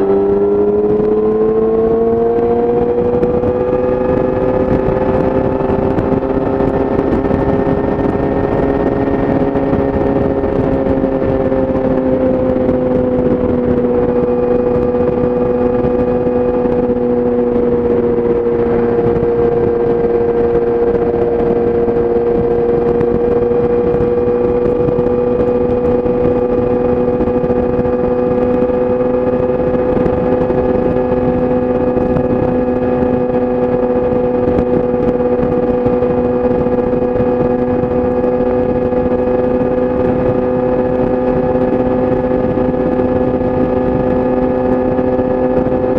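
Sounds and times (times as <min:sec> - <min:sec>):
motorcycle engine cruising: 0:00.0 - 0:45.9.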